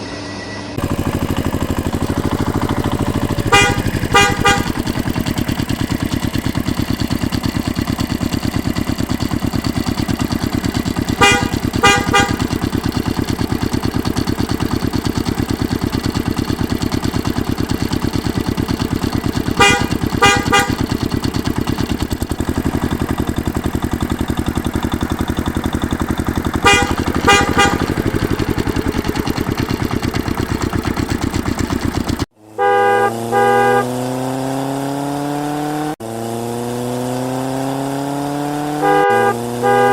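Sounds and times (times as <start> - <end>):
engine revving up: 0.0 - 6.9, 9.3 - 23.2, 26.0 - 39.9
horn toots: 0.7 - 7.7, 8.7 - 16.6, 17.3 - 22.7, 26.2 - 30.5, 32.6 - 35.0, 38.5 - 39.9
tractor engine running: 0.7 - 35.3, 36.2 - 39.9.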